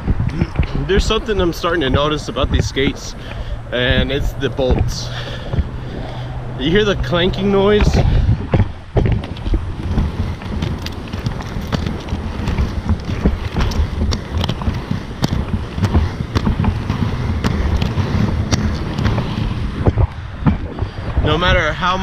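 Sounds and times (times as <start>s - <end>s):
inline skate wheels rumbling: 0.0s - 22.0s
wind on microphone: 0.0s - 22.0s
skate frames clanking: 7.0s - 22.0s.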